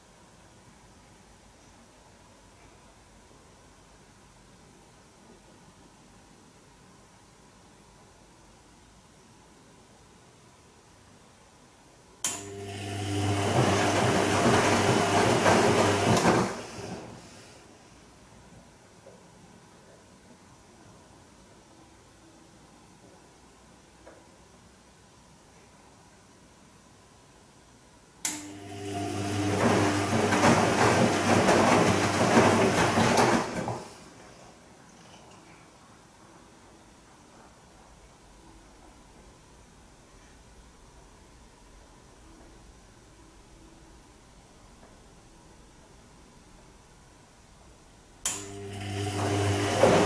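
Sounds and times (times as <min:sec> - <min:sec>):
washing machine drum turning: 0:12.4 - 0:17.0, 0:28.4 - 0:34.2, 0:48.3 - 0:50.0
motor click: 0:28.2 - 0:28.5
wet laundry tumbling and sloshing: 0:29.2 - 0:34.2.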